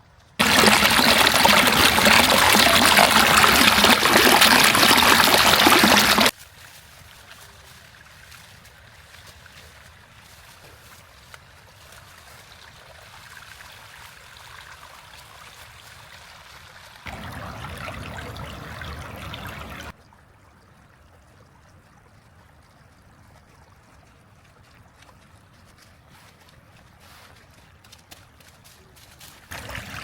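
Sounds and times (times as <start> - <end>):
water washing in rain: 0.4 - 20.0, 27.9 - 30.0.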